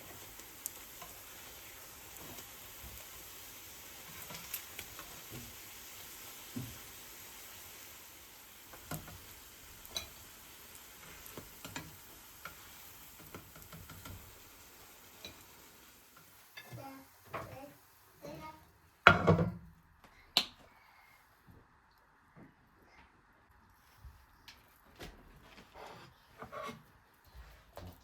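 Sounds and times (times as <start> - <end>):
food sizzling in a pan: 0.0 - 19.5.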